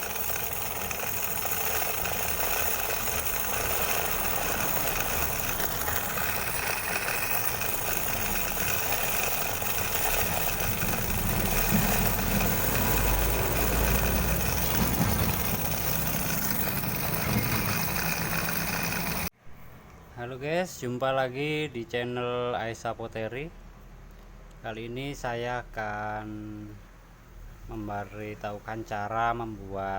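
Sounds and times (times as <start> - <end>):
small motor buzzing and rattling: 0.0 - 19.3.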